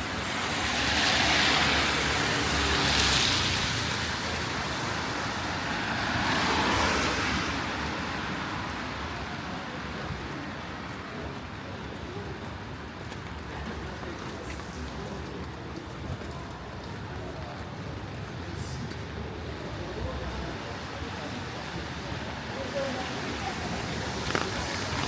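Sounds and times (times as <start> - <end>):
tyres hissing on wet road: 0.0 - 11.0, 19.8 - 25.0.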